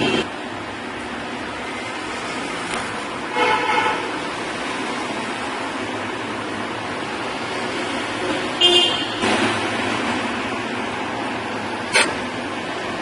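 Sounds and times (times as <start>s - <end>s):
street traffic: 0.0s - 13.0s
car horn toot: 3.3s - 4.0s, 8.6s - 9.2s.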